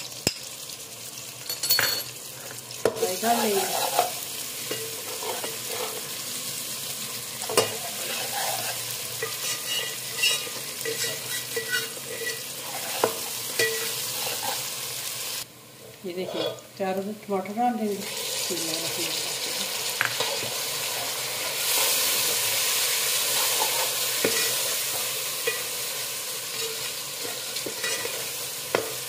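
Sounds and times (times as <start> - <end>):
onions sizzling in hot oil: 0.0 - 29.0
ladle scraping and knocking pot: 7.4 - 14.6, 26.5 - 29.0.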